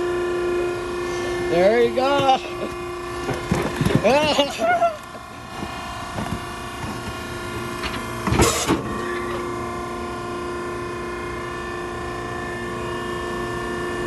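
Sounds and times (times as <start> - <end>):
baler motor and pump hum: 0.0 - 14.0
loud clunk: 7.8 - 9.0.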